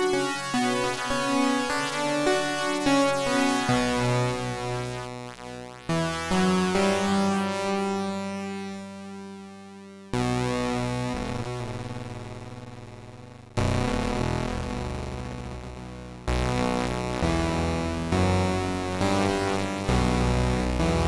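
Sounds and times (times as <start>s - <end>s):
synthesizer sustained chords: 10.3s - 21.0s.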